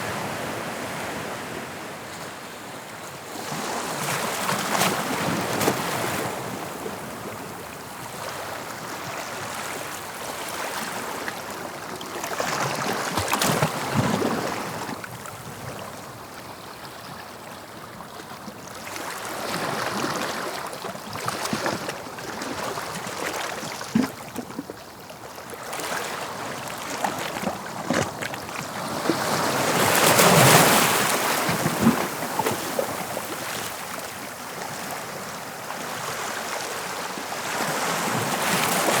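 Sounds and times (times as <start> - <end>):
sea waves breaking on shore: 18.8 - 39.0.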